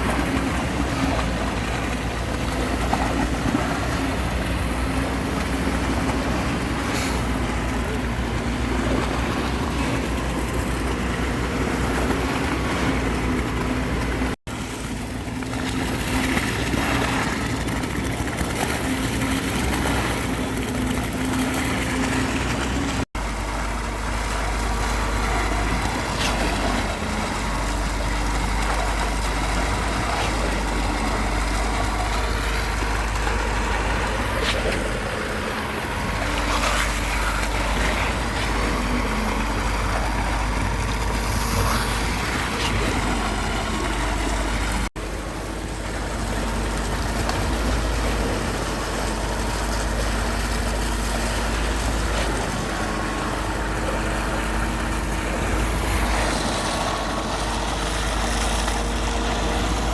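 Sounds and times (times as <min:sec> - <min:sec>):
vehicle engine low rumble: 0:00.0 - 0:59.9.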